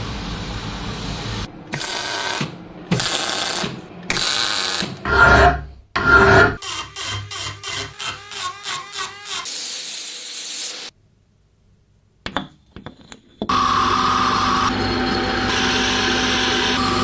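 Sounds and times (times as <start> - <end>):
electric power tool running: 6.6 - 10.9, 13.5 - 17.0.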